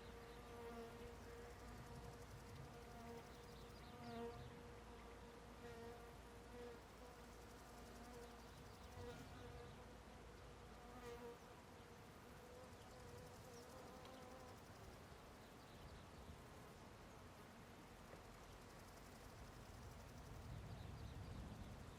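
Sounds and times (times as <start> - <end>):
flying insect buzzing: 0.0 - 10.0, 12.3 - 15.0.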